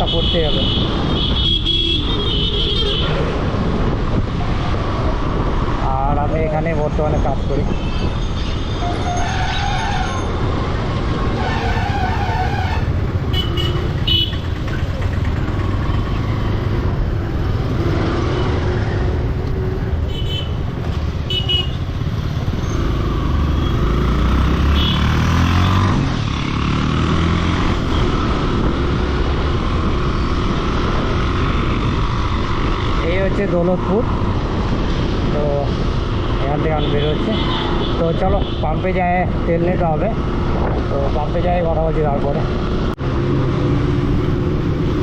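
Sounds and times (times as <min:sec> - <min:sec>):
traffic: 0:00.0 - 0:45.0
wind and road noise: 0:00.0 - 0:45.0
motorcycle engine running: 0:13.4 - 0:16.7.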